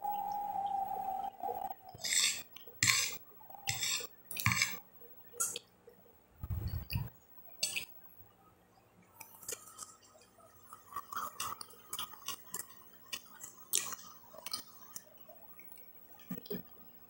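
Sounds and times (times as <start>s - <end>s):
dull low bump: 6.4s - 7.1s
wet chewing: 10.6s - 16.6s.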